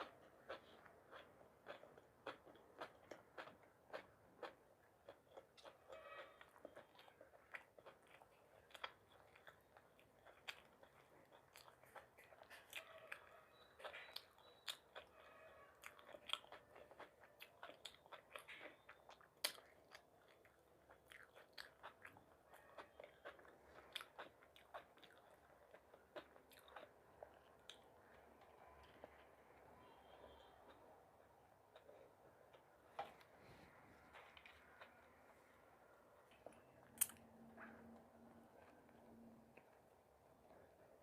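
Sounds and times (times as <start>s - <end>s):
person chewing food: 0.0s - 41.0s.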